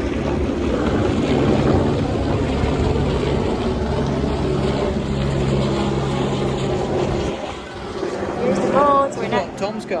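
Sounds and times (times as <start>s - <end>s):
engine droning: 0.0s - 10.0s.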